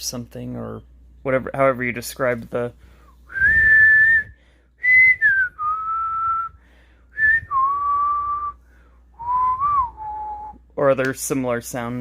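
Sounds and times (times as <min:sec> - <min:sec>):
person whistling a slow tune: 0:03.3 - 0:08.6, 0:09.2 - 0:10.6.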